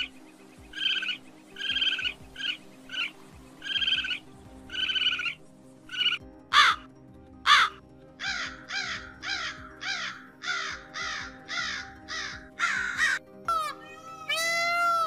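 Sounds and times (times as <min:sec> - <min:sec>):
background music with held notes: 0:00.0 - 0:15.0
crow cawing: 0:06.5 - 0:06.9, 0:07.5 - 0:13.8.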